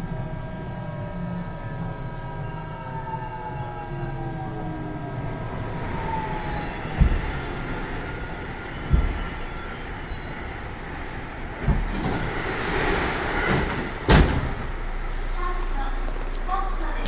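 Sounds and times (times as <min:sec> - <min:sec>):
train inverter whine: 0:00.0 - 0:17.0
wheel and rail noise: 0:04.1 - 0:17.0
low thumps: 0:05.2 - 0:12.4.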